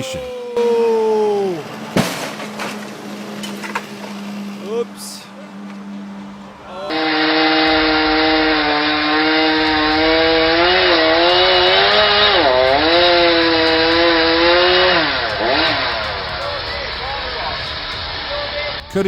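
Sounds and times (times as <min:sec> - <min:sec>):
chainsaw cutting wood: 0:06.9 - 0:18.2.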